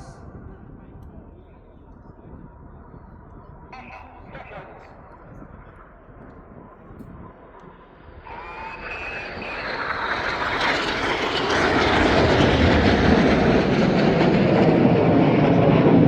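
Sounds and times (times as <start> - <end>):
turbine whine: 0.0 - 16.0
jet passing with loud rush: 7.9 - 16.0.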